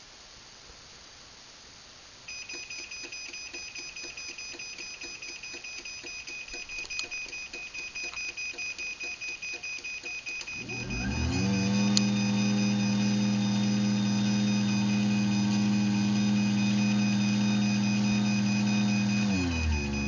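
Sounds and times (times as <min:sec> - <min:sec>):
high-pitched warning beep: 0:02.3 - 0:20.0
garage door opener motor hum: 0:10.2 - 0:20.0.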